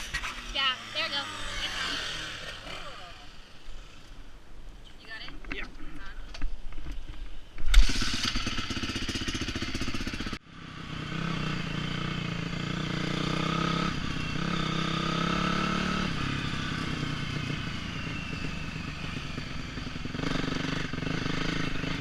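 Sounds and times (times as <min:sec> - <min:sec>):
dirt bike engine running: 0:07.7 - 0:22.0.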